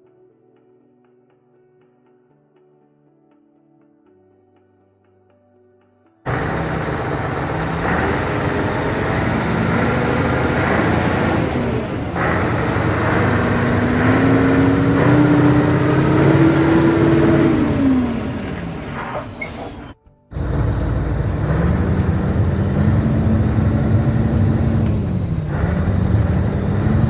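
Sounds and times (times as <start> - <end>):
diesel truck engine revving: 6.3 - 27.0.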